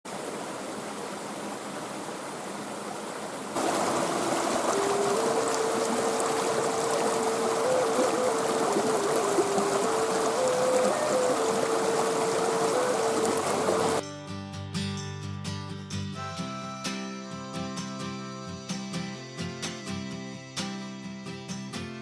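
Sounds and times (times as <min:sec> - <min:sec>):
running water: 0:00.1 - 0:14.0
slow melody of held notes: 0:03.6 - 0:14.0, 0:16.2 - 0:20.6.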